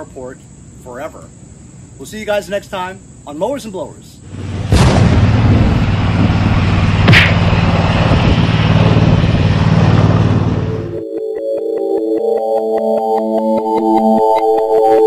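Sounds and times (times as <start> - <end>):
engine running loudly: 4.3 - 11.0
sharp crack: 4.4 - 10.3
synth music: 10.0 - 15.0.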